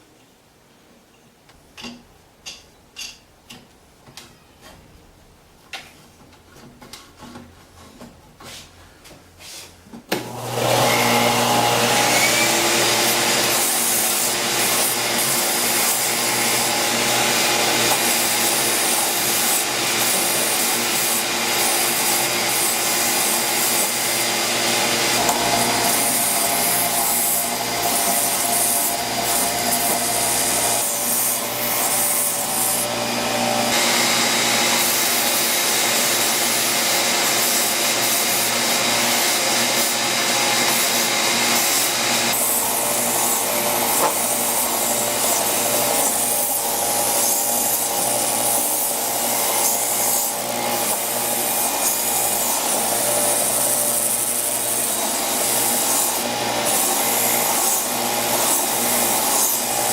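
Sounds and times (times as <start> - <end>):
belt sander grinding wood: 10.2 - 59.9.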